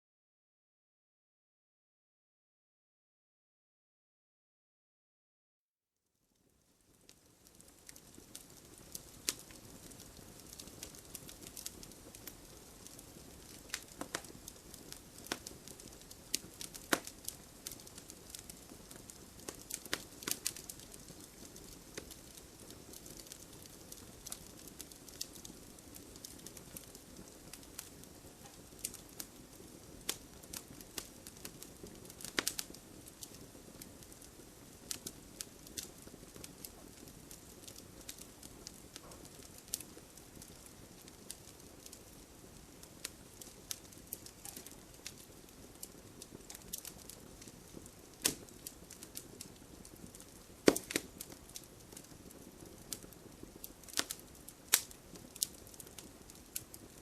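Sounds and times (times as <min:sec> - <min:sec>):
wood fire crackling and popping: 0:06.4 - 0:57.0
low hiss of flames: 0:06.5 - 0:57.0
loud snaps of burning wood: 0:07.0 - 0:57.0.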